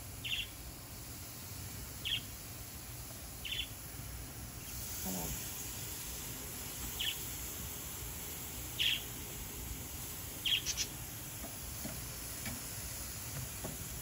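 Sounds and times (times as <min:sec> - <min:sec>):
steady low background noise: 0:00.0 - 0:14.0
short high bird chirps: 0:10.4 - 0:10.9.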